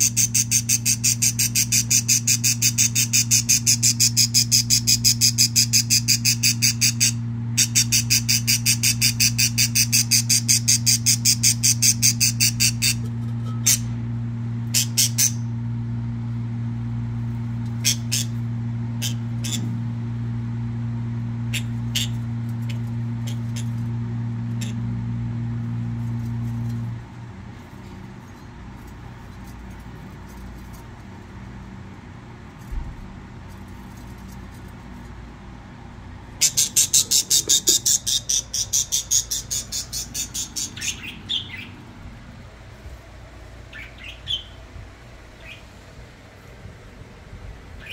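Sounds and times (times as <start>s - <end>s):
budgerigars chirping: 0.0s - 13.0s, 14.7s - 15.4s, 17.8s - 18.4s, 19.0s - 19.7s, 21.5s - 23.7s, 36.4s - 41.8s, 43.7s - 44.6s, 45.4s - 45.7s
steady low hum: 0.0s - 47.9s.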